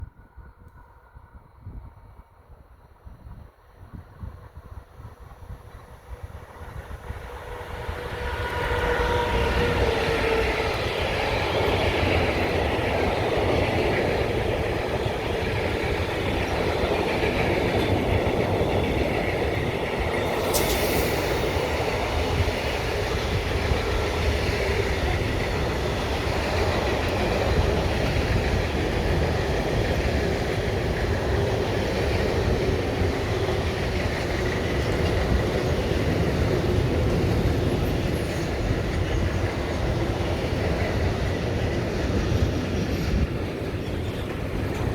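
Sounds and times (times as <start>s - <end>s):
train rumbling past: 0.0s - 44.9s
sharp high-pitched sound: 20.3s - 22.9s.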